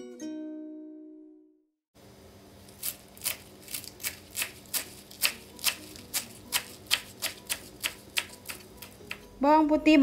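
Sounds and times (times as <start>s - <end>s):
knife chopping on cutting board: 2.8s - 9.3s.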